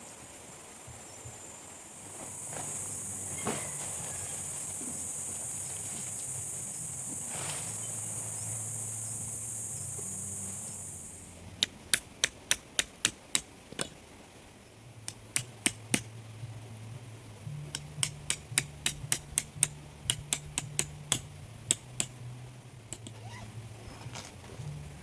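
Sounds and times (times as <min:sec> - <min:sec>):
insects buzzing: 0:00.0 - 0:25.0
sharp hammer-like knocks: 0:15.1 - 0:16.1, 0:17.7 - 0:22.2.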